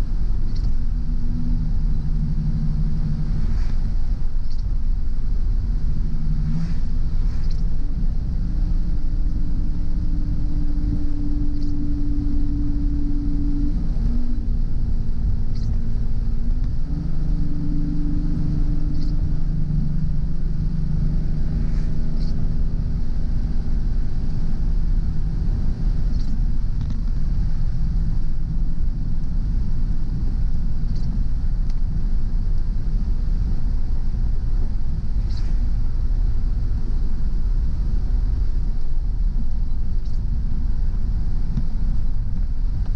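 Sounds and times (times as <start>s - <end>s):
car engine and tyre rumble: 0.0s - 42.9s
faint short ticks: 0.4s - 0.8s, 4.4s - 4.7s.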